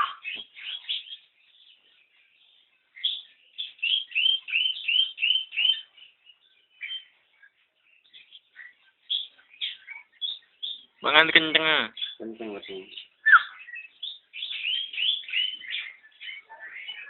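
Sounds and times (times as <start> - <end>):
nestling bird begging chirps: 0.0 - 17.0.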